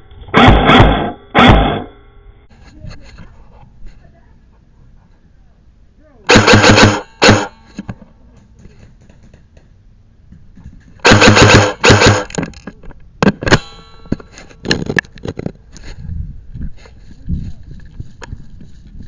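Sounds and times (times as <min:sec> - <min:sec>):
airsoft gun full-auto bursts: 0:06.3 - 0:07.6, 0:11.0 - 0:12.3.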